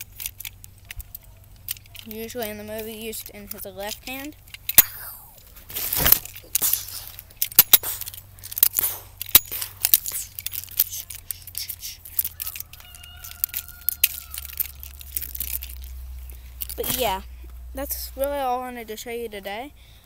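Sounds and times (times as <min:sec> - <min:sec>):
rustling: 0:00.0 - 0:19.1
toy cap gun clicks and knocks: 0:00.1 - 0:05.1, 0:06.0 - 0:15.9.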